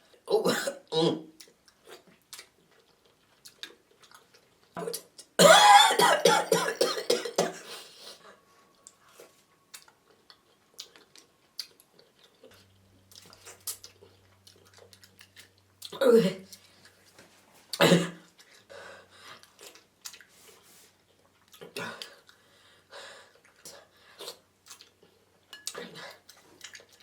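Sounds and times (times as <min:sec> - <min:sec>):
person coughing hard: 0:00.4 - 0:01.2, 0:05.4 - 0:07.7, 0:17.8 - 0:18.2.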